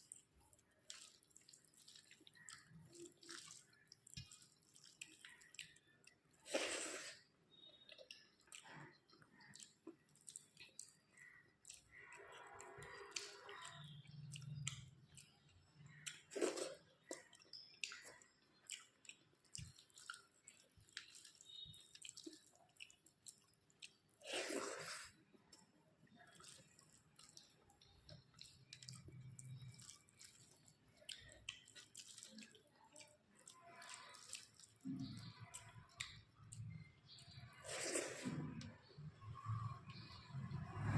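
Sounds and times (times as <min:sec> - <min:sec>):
close chewing and mouth sounds: 0:00.0 - 0:40.9.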